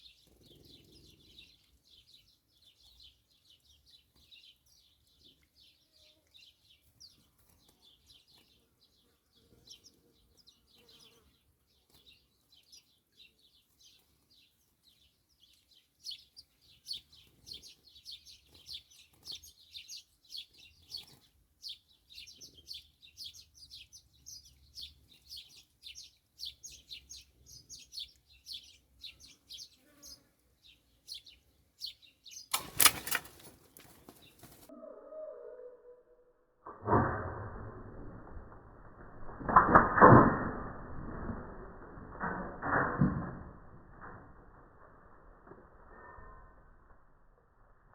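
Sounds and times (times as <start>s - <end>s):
songbirds chirping: 0.0s - 36.8s.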